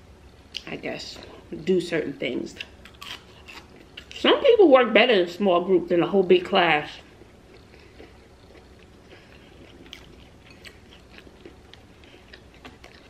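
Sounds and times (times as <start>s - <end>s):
person chewing food: 2.6s - 4.2s, 7.0s - 13.0s.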